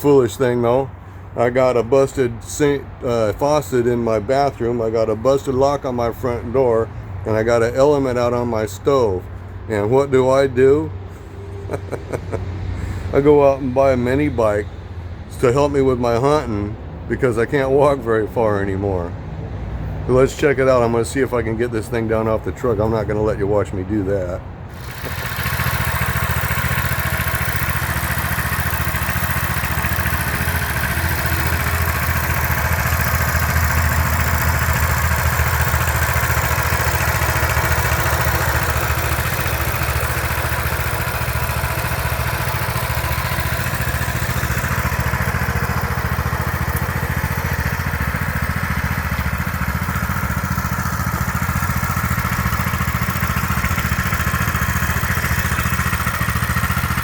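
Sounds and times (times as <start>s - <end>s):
mini bike engine running: 24.2s - 57.0s.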